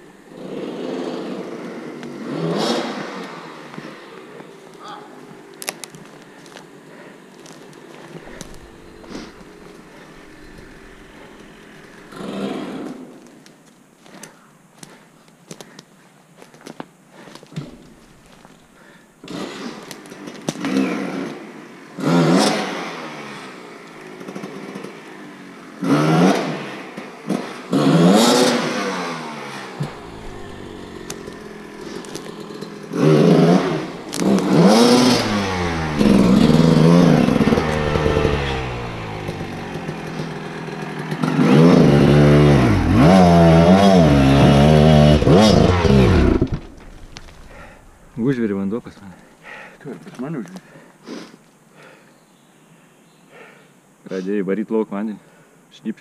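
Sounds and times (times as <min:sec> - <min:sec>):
dirt bike engine revving: 0:00.0 - 0:04.3, 0:07.8 - 0:13.1, 0:20.6 - 0:48.8.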